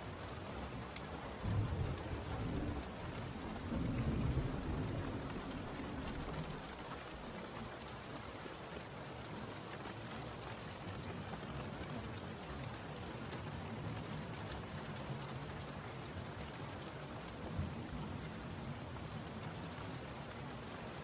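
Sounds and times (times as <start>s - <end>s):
rain falling: 0.0s - 21.0s
distant thunder rumble: 1.4s - 7.4s.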